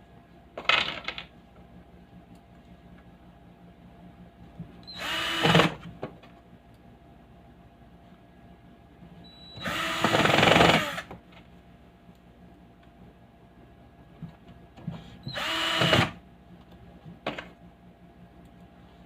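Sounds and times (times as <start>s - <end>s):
power drill whirring: 4.9s - 5.8s, 9.6s - 11.1s, 15.2s - 16.2s.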